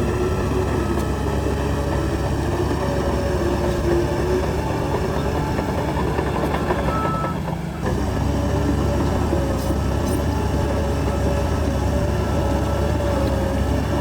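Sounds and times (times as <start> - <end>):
heavy diesel engine rumbling: 0.0 - 14.0.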